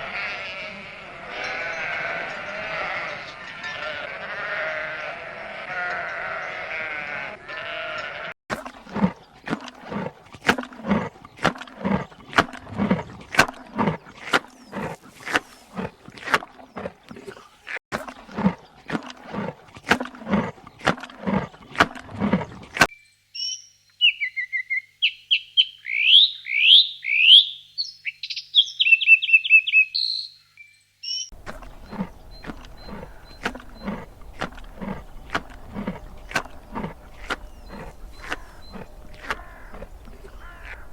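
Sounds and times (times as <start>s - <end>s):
songbird singing trills: 22.9s - 40.9s.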